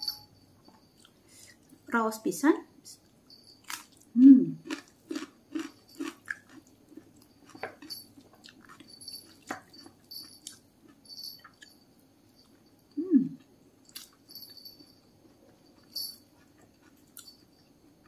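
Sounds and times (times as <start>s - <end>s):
person chewing food: 3.6s - 11.7s, 13.8s - 18.0s.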